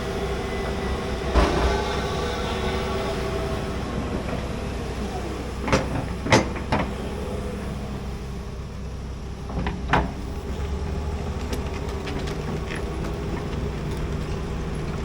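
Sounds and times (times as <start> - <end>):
excavator running: 0.0 - 15.0
metallic clanks: 1.2 - 4.4.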